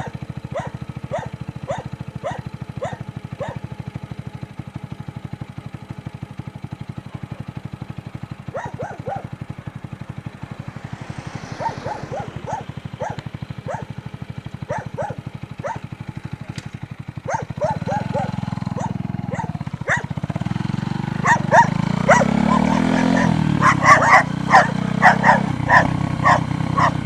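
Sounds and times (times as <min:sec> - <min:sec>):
dogs barking: 0:00.0 - 0:03.7, 0:08.4 - 0:09.5, 0:11.1 - 0:14.0, 0:14.6 - 0:16.6, 0:17.2 - 0:20.2, 0:21.2 - 0:27.0
low pulsing drone: 0:08.6 - 0:15.8.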